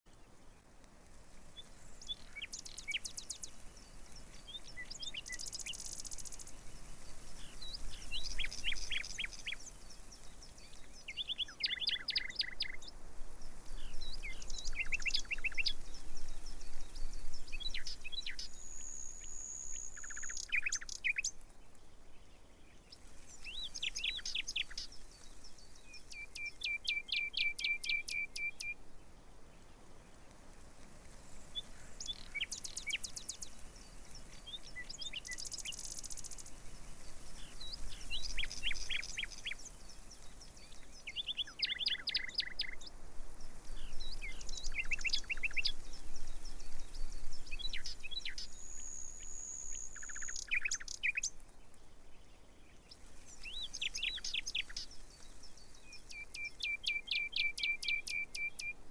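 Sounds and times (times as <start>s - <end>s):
birds singing: 1.6s - 28.8s, 31.2s - 58.9s
bird trill: 7.4s - 9.7s, 11.1s - 12.8s, 17.5s - 21.3s, 26.1s - 28.8s, 41.0s - 42.8s, 47.6s - 51.3s, 56.0s - 58.7s
bird whistle: 26.1s - 28.8s, 47.7s - 51.3s.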